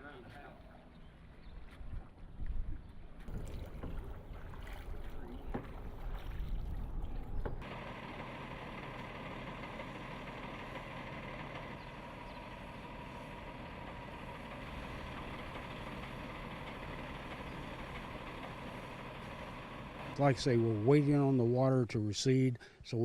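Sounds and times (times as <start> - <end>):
engine idling: 7.4 - 21.6.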